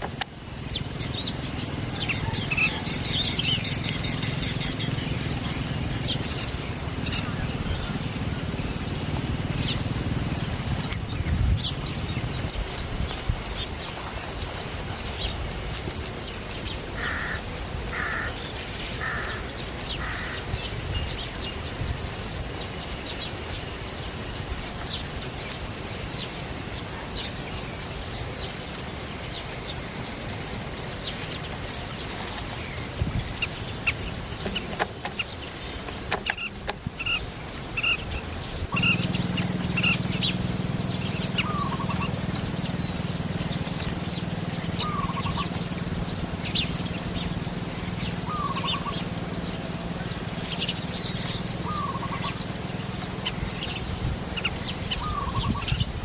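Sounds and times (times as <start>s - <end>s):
steady low hum: 0.0s - 15.4s, 38.3s - 56.0s
small birds chirping: 0.0s - 56.0s.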